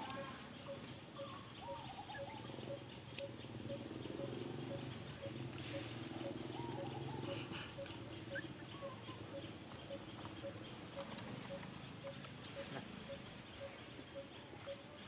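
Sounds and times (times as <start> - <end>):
high bird chirp: 0.0 - 14.9
soft ticks: 3.1 - 3.4, 4.2 - 6.9, 9.7 - 13.3.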